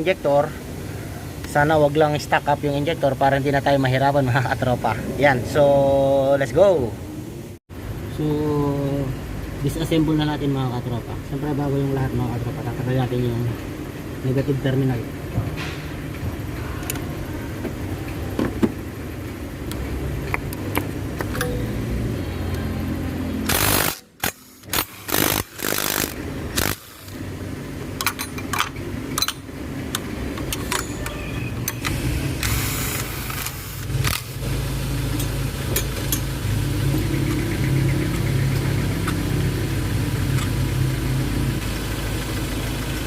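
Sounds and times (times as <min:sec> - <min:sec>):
low engine hum: 0:03.0 - 0:23.5, 0:26.1 - 0:43.0
hand tools clinking on metal: 0:28.0 - 0:29.5, 0:30.4 - 0:31.3.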